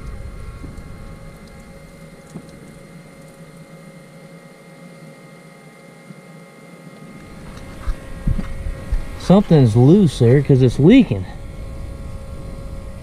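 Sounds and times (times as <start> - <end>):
fuel pump whining: 0.0 - 4.3, 7.0 - 13.0.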